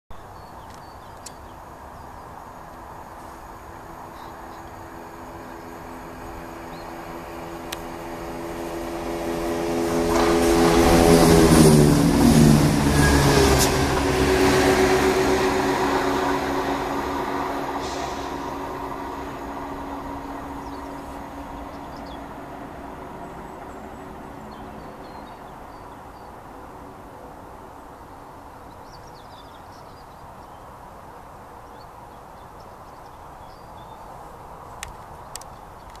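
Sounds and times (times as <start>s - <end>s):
birds chirping: 0.1s - 2.4s, 3.7s - 11.8s, 16.0s - 26.4s, 31.6s - 36.0s
diesel train engine hum: 0.2s - 29.6s
sharp clicks: 34.8s - 36.0s.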